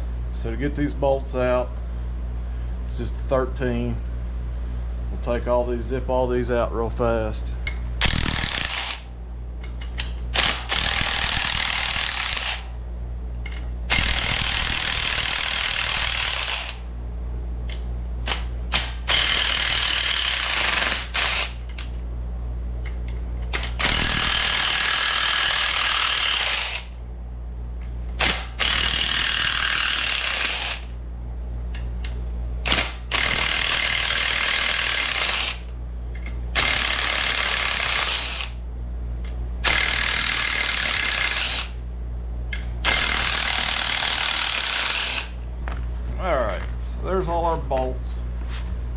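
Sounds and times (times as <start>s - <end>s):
steady low hum: 0.0s - 48.9s
power tool spinning out bolts: 23.5s - 26.9s.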